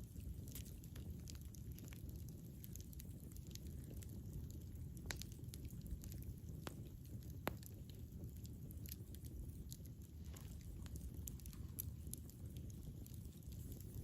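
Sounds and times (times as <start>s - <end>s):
campfire flames rumbling: 0.0s - 14.0s
wood crackling and popping: 0.0s - 14.0s.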